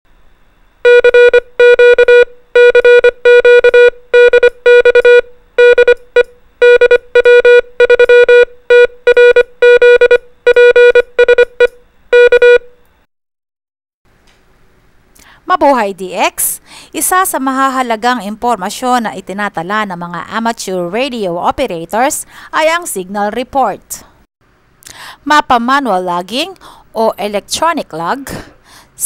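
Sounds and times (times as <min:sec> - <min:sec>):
morse code beeps: 0:00.8 - 0:12.8.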